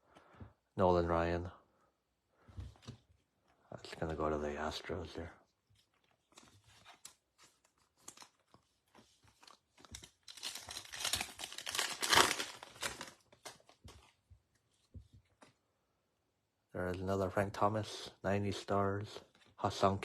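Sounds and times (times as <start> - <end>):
foil wrapper tearing and crinkling: 9.4 - 13.8.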